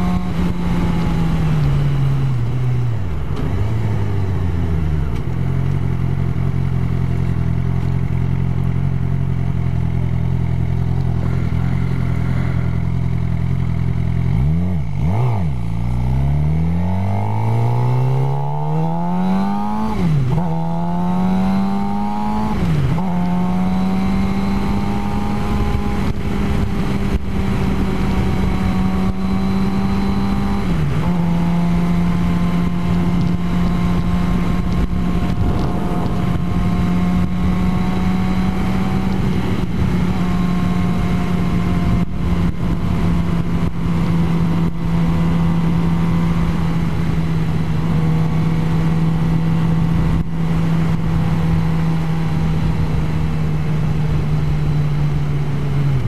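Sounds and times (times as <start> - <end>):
motorcycle engine shifting gears: 0.0 - 56.0.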